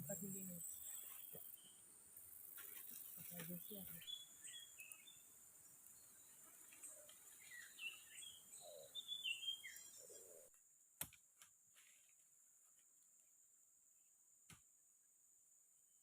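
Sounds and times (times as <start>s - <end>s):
high insect hum: 0.0s - 16.0s
bird chirps: 2.5s - 10.6s.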